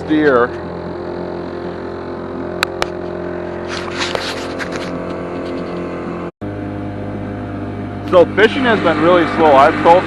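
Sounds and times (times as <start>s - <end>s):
boat motor humming: 0.0s - 10.0s
scraping or rustling: 3.0s - 6.0s.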